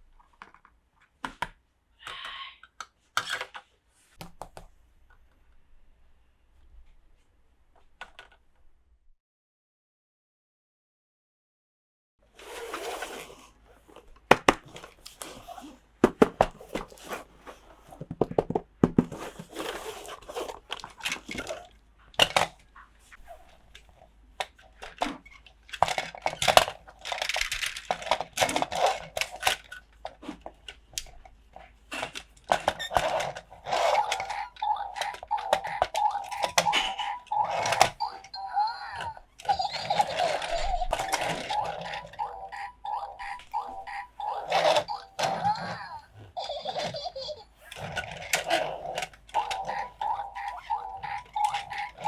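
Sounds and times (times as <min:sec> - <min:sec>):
plastic toy pieces clicking: 0:24.4 - 0:31.2, 0:31.9 - 0:52.0.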